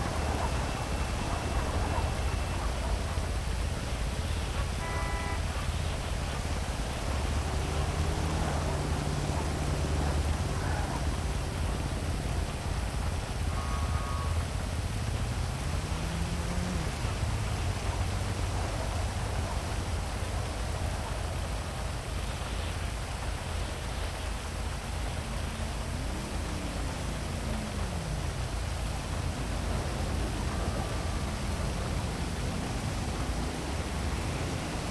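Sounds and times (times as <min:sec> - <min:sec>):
heavy rain hissing: 0:00.0 - 0:34.9
low city traffic rumble: 0:00.0 - 0:34.9
vehicle passing by: 0:05.6 - 0:20.9, 0:24.5 - 0:34.9.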